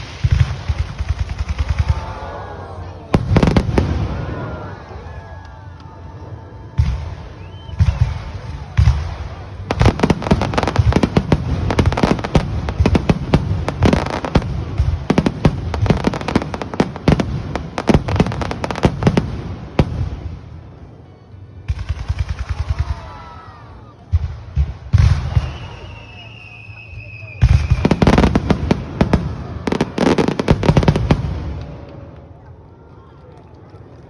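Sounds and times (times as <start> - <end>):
fireworks crackling: 0.0 - 4.9, 6.8 - 20.6, 24.3 - 34.0
firework bangs: 27.4 - 32.0.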